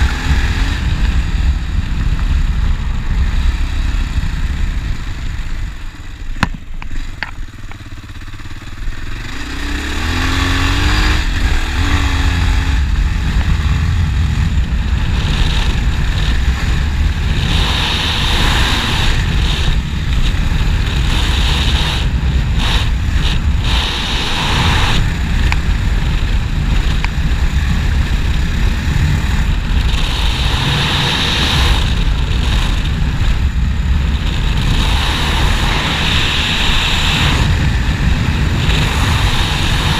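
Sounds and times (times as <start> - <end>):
motorcycle engine accelerating: 0.0 - 39.9
wind and riding noise: 0.0 - 39.9.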